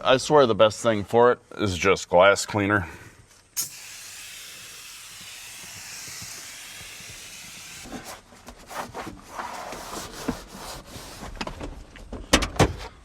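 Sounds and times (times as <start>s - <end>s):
aerosol spray hiss: 3.6s - 8.0s
rubbing and scuffing: 5.1s - 11.8s.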